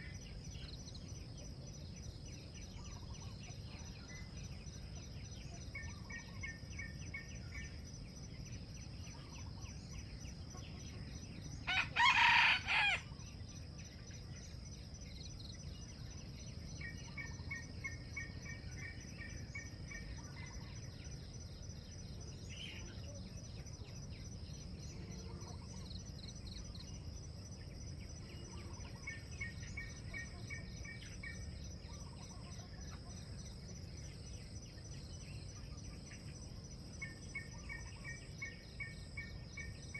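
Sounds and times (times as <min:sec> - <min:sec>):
high insect drone: 0:00.0 - 0:39.9
rooster crowing: 0:11.7 - 0:13.1.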